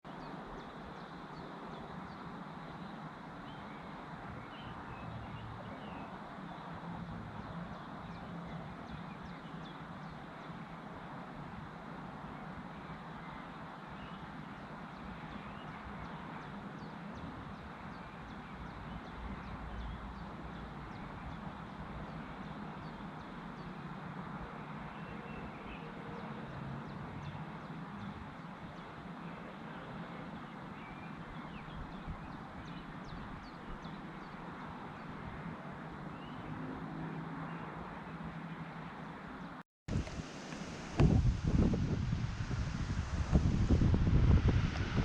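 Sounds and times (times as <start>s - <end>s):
outdoor background noise: 0.0s - 45.0s
wind buffeting microphone: 39.9s - 45.0s
low rumble: 41.0s - 45.0s.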